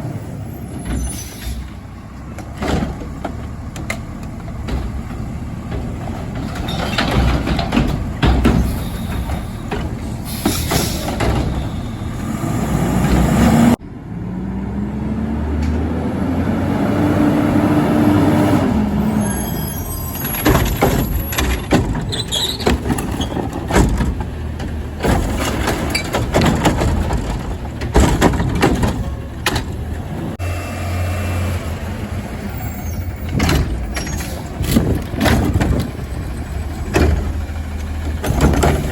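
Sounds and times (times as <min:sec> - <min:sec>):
metal bangs and clanks: 0:02.4 - 0:12.1, 0:20.0 - 0:30.4, 0:33.0 - 0:38.9
garbage truck engine revving: 0:02.5 - 0:38.9.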